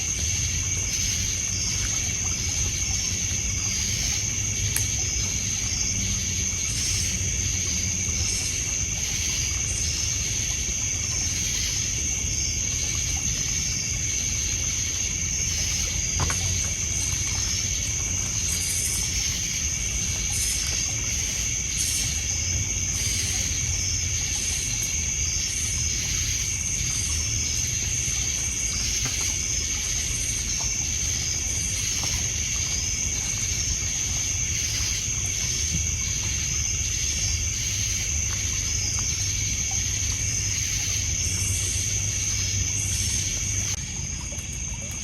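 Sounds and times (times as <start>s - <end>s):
insects trilling and chirping: 0.0s - 45.0s
water lapping on pebble beach: 0.0s - 45.0s.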